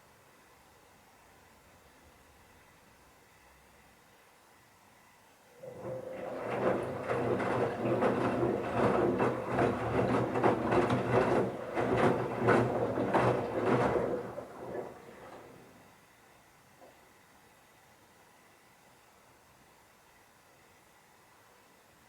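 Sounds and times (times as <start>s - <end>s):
washing machine motor humming: 5.6s - 15.9s.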